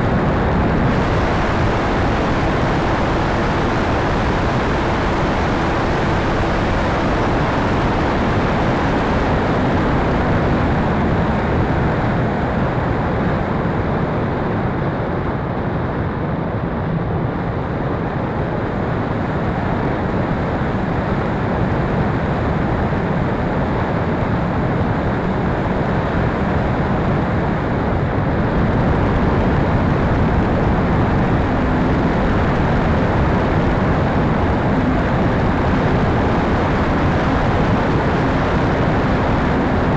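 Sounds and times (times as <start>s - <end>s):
rushing air noise: 0.0s - 14.1s
faint hum: 0.0s - 39.9s.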